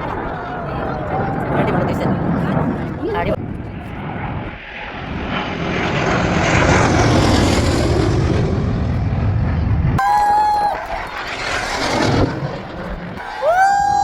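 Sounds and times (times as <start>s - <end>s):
aircraft engine roar: 0.0s - 14.0s
steady high tone: 0.6s - 2.3s.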